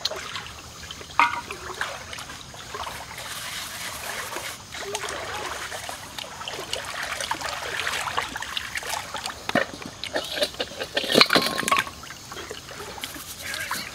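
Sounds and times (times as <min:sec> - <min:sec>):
wet chewing and lip-smacking: 0:08.5 - 0:11.1.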